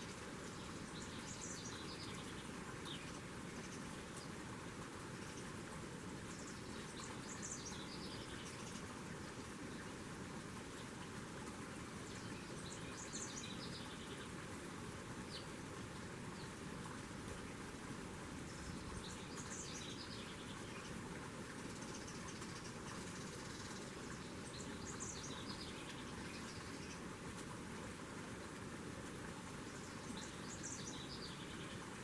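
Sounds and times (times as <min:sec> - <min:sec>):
steady outdoor hiss: 0:00.0 - 0:32.0.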